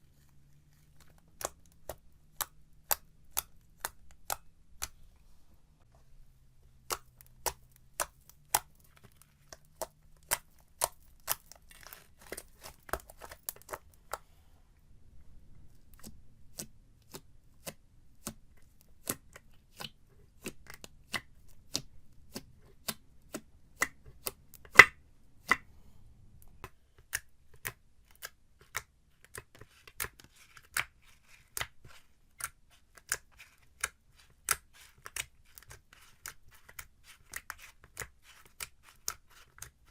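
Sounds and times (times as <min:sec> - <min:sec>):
slime clicking: 0:01.3 - 0:05.0.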